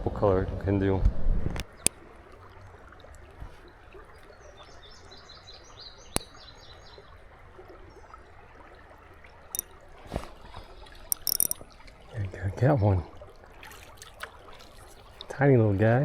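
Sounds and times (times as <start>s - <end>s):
creek water running: 1.6s - 16.0s
songbird singing: 3.9s - 8.3s
sharp clicks: 11.1s - 11.6s.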